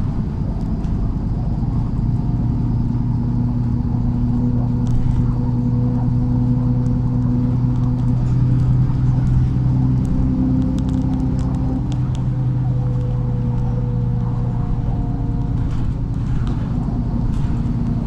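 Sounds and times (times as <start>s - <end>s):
bus engine droning: 0.0s - 18.0s
light clicks and rattles: 15.3s - 18.0s.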